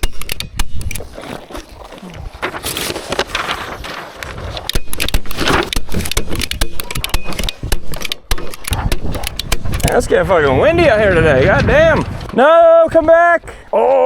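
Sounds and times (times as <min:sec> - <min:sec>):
sharp clicks and rattles: 0:00.0 - 0:01.1, 0:04.6 - 0:12.6
wind buffeting microphone: 0:08.7 - 0:13.8.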